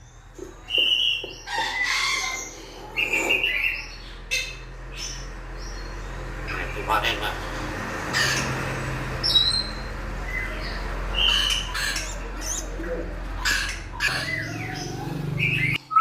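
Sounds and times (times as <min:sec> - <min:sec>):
bird squawks and chirps: 0:00.7 - 0:05.3, 0:09.2 - 0:15.8.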